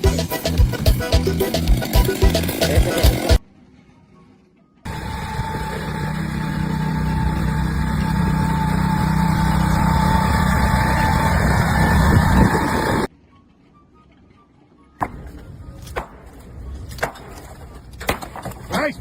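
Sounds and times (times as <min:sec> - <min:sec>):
engine running steadily: 0:00.0 - 0:03.4, 0:04.9 - 0:13.1.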